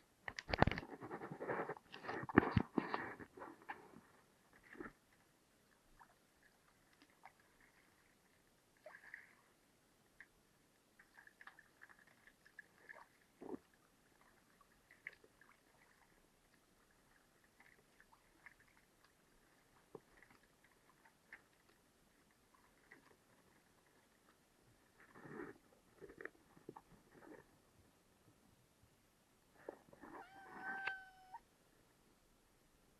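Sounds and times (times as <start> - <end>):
faint clicks and taps: 0.2 - 3.9.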